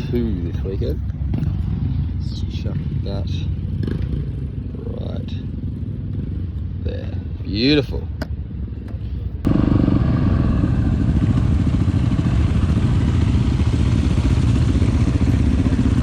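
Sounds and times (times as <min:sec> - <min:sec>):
motorcycle engine running: 0:09.5 - 0:16.0.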